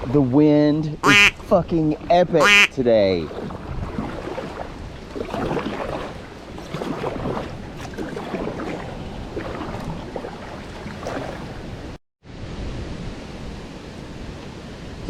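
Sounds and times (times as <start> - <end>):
wind gusting on microphone: 0.0 - 15.0
water splashing around kayak: 1.0 - 12.0.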